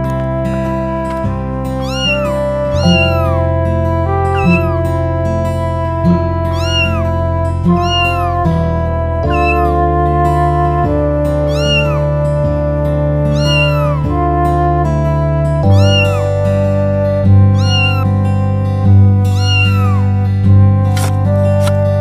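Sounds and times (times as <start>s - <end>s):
gentle background music: 0.0s - 22.0s
cat meowing: 1.7s - 5.0s, 6.3s - 9.8s, 11.4s - 12.2s, 13.3s - 14.1s, 15.6s - 16.6s, 17.2s - 18.2s, 19.2s - 20.3s.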